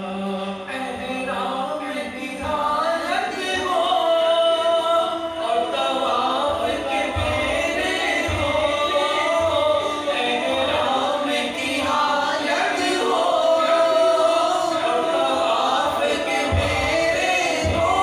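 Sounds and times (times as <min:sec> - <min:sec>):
man singing with heavy echo: 0:00.0 - 0:18.0.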